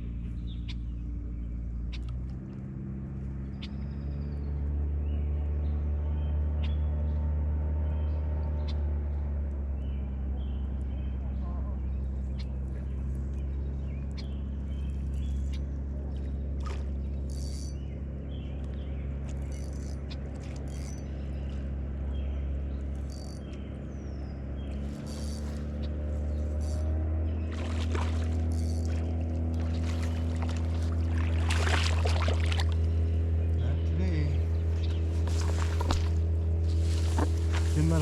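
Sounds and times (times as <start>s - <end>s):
boat motor humming: 0.0s - 38.0s
bird chirps: 17.0s - 27.7s, 33.3s - 38.0s.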